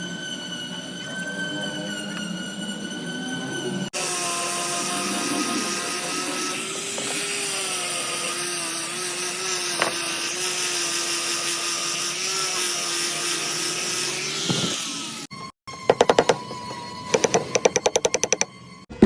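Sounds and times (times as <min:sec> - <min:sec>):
electric power tool whining: 0:04.0 - 0:18.8.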